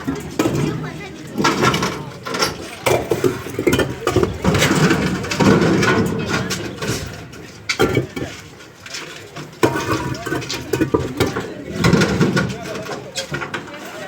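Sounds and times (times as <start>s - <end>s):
stones knocking and clattering: 7.7s - 8.5s, 9.4s - 13.6s.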